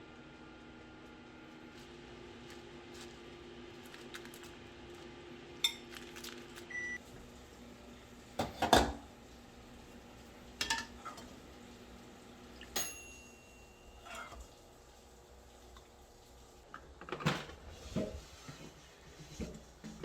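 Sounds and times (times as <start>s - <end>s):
appliance hum: 0.0s - 20.0s
dishes and utensils clinking: 5.6s - 6.1s, 8.4s - 9.0s, 10.6s - 11.3s, 12.7s - 14.4s.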